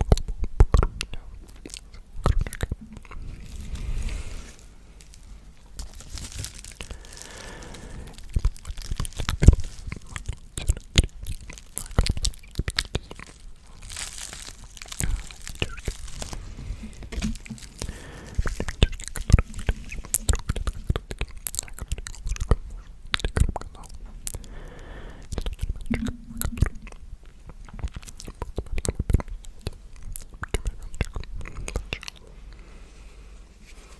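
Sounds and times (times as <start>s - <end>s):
wet mouth clicks and smacks: 0.0s - 3.2s, 8.2s - 13.8s, 16.9s - 24.6s, 25.2s - 32.3s
soft whispering: 0.6s - 33.9s.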